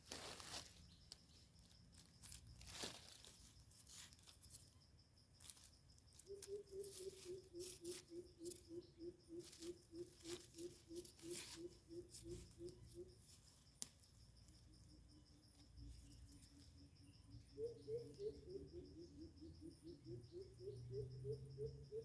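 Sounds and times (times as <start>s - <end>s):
rustling of leaves and soil: 0.0s - 17.6s.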